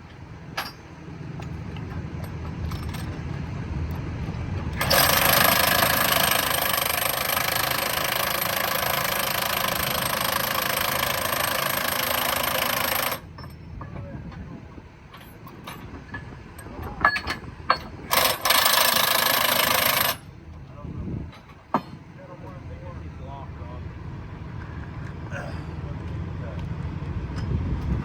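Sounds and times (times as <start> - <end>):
impact wrench hammering: 4.8 - 13.2
low engine rumble: 20.2 - 28.0.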